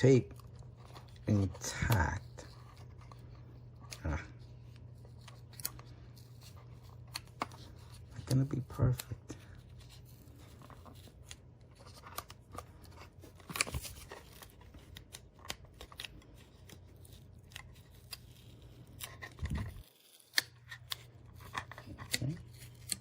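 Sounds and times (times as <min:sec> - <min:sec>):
foil tape peeling off plastic: 0:09.8 - 0:23.0.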